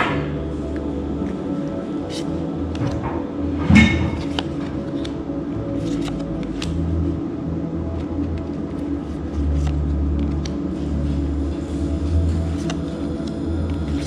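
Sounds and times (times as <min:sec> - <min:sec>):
held low tones: 0:00.0 - 0:14.0
steady low hum: 0:00.0 - 0:14.0
trading cards clicking: 0:02.1 - 0:02.9, 0:04.2 - 0:05.2, 0:05.8 - 0:06.8.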